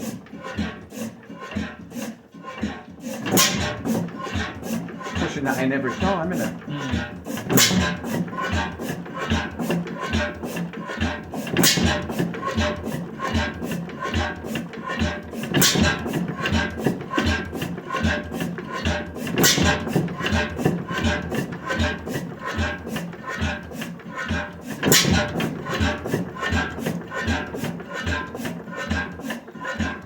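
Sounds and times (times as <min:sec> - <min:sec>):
gas engine clicks and thuds: 0:02.6 - 0:30.0
loud engine bangs: 0:05.2 - 0:08.1, 0:24.8 - 0:27.6.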